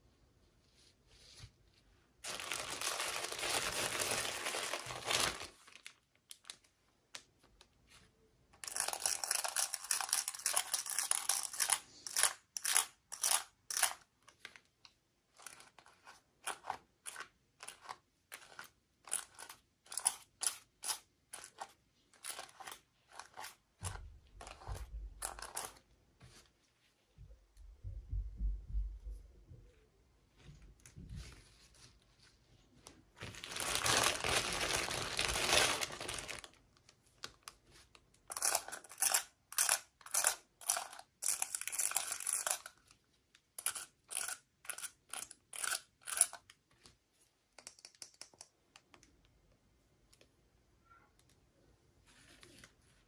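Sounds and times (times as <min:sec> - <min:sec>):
packaging tearing and crinkling: 0:02.2 - 0:06.5, 0:33.2 - 0:36.5
dull low thumps: 0:27.7 - 0:29.6.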